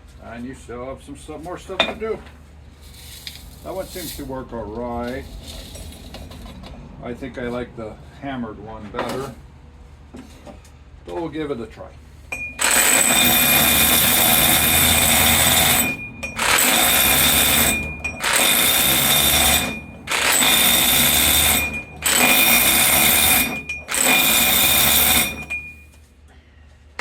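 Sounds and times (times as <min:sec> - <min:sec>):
hammer drill crushing ore: 0:12.4 - 0:25.9.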